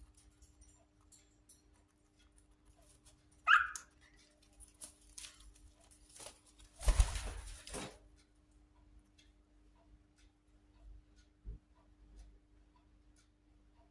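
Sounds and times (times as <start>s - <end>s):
cockatiel squawk: 3.5s - 3.9s.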